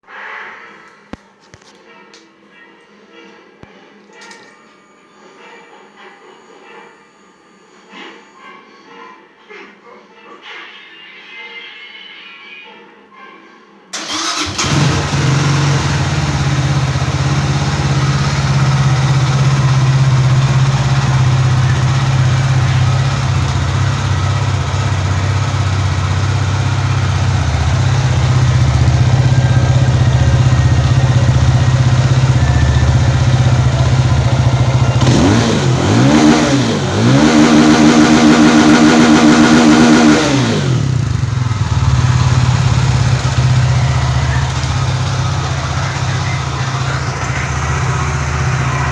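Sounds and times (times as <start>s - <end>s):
motorcycle engine idling and revving: 14.0s - 48.9s.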